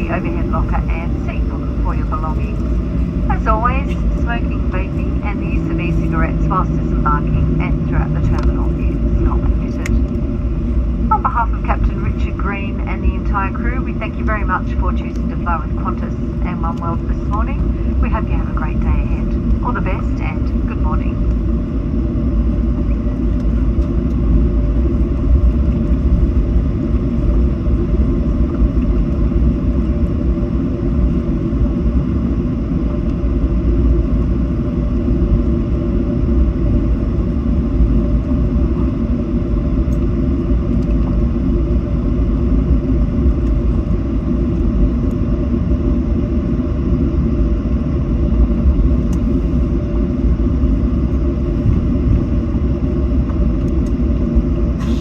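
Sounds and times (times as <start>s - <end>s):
faint steady tones: 0.0s - 24.2s
airplane cabin rumble: 0.0s - 55.0s.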